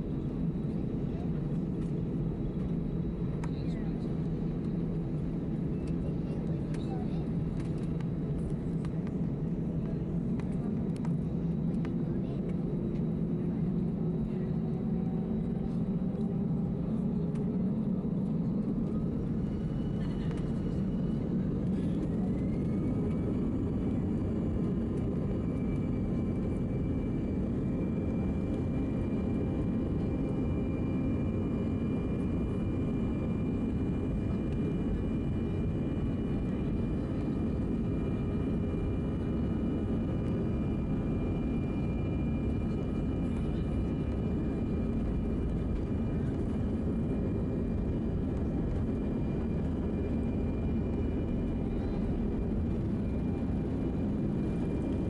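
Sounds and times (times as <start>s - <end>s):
jet engine whine: 0.0s - 55.0s.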